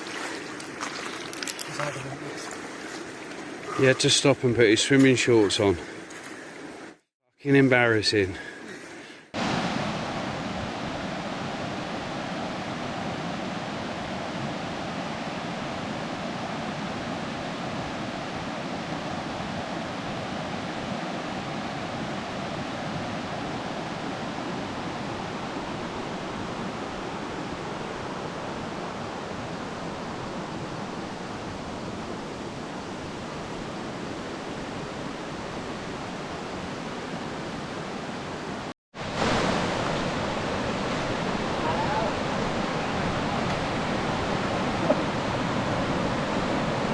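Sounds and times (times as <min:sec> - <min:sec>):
fast-flowing river roaring: 0:36.8 - 0:46.9.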